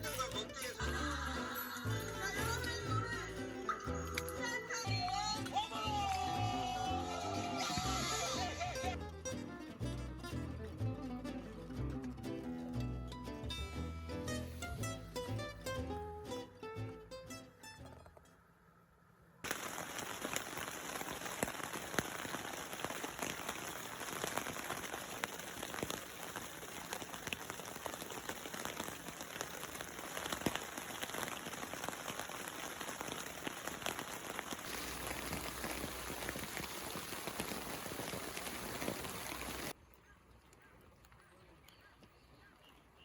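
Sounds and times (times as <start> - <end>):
steady rainfall: 0.0 - 9.3, 19.4 - 39.8
raindrops ticking: 0.0 - 10.6, 19.4 - 39.8.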